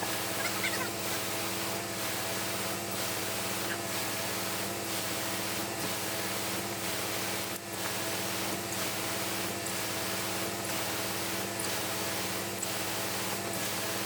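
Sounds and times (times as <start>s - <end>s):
engine drone: 0.0s - 14.0s.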